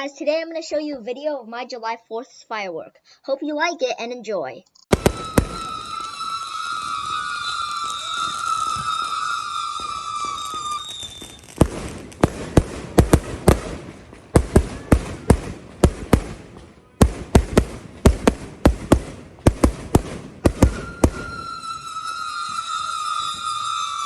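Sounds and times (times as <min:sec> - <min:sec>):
fireworks banging: 0:04.9 - 0:24.0
high wailing tone: 0:05.0 - 0:11.6, 0:20.6 - 0:24.0.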